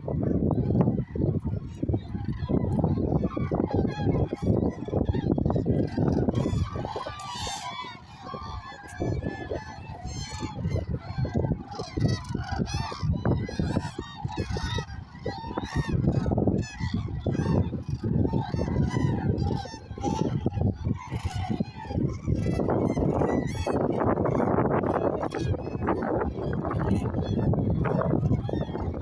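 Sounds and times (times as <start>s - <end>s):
cranes trumpeting calls: 6.0s - 16.0s.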